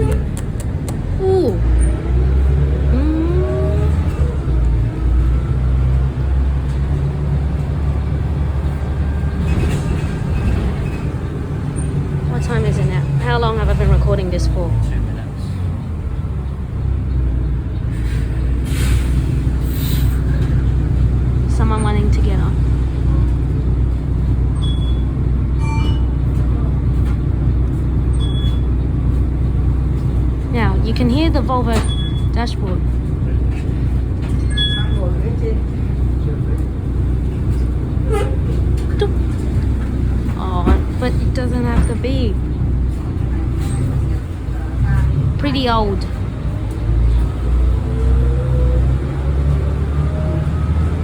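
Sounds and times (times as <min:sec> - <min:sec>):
bus diesel engine rumbling: 0:00.0 - 0:51.0
chime-like tones: 0:25.6 - 0:26.1
short high dashboard beeps: 0:25.6 - 0:26.2.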